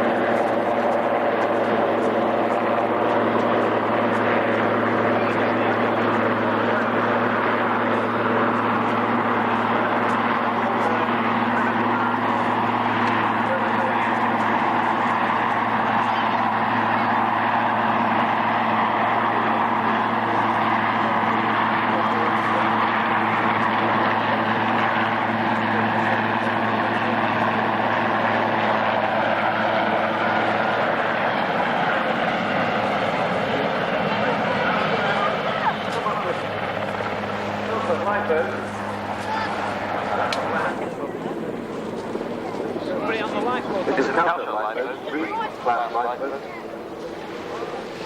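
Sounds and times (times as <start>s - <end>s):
helicopter hovering: 0.0s - 48.0s.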